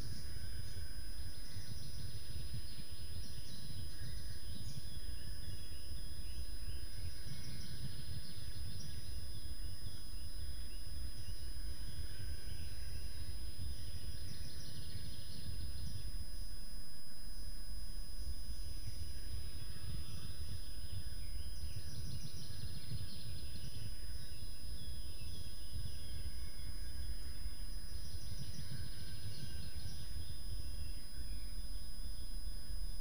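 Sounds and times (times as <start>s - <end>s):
birds chirping and singing: 0.0s - 16.3s, 18.4s - 32.3s.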